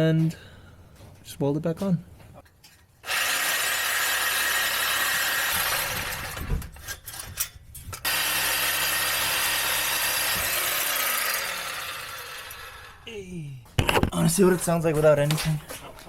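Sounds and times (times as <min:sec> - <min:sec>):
power tool cutting steel pipe: 0:03.0 - 0:07.0, 0:08.0 - 0:13.0.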